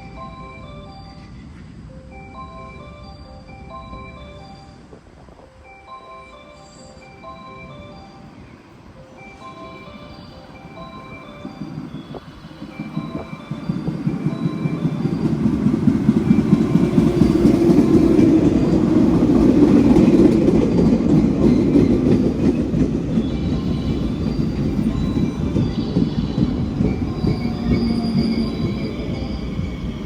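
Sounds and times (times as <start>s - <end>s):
train wheels rumbling on rail: 9.2s - 30.0s
faint high squealing: 21.4s - 30.0s.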